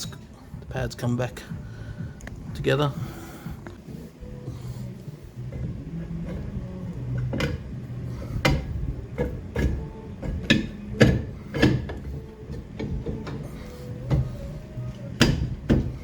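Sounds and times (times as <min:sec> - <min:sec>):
clicks and knocks on brake parts: 0:05.5 - 0:14.4, 0:15.0 - 0:16.0.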